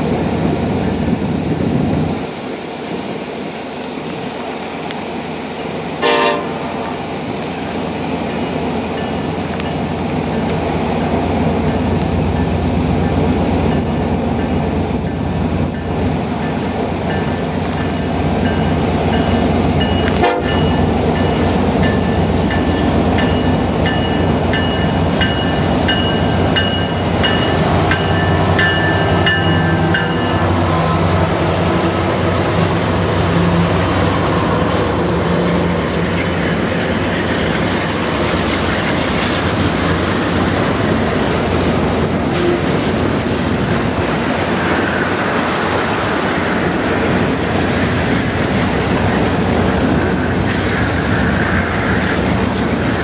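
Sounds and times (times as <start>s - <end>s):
diesel locomotives rumbling: 0.0s - 53.0s
locomotive horn: 6.0s - 6.9s, 20.1s - 20.8s
wheels rolling on rails: 31.4s - 53.0s.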